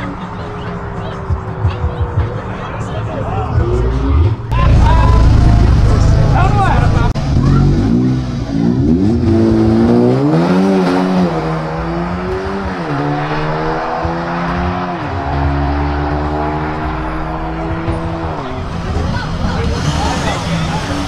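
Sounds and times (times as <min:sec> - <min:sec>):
cars accelerating hard: 0:00.0 - 0:21.0.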